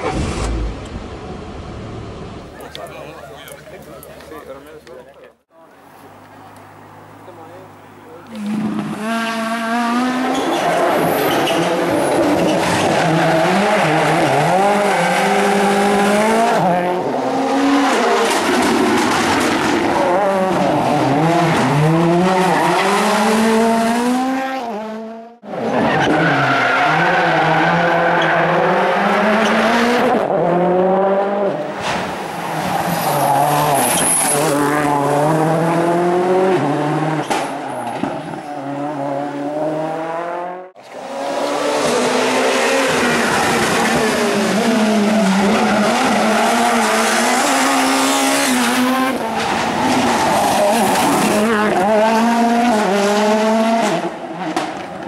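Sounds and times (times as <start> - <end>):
rally car engines revving: 7.0 - 55.0
tyres squealing and skidding: 10.2 - 16.0, 25.6 - 29.8, 32.4 - 34.7.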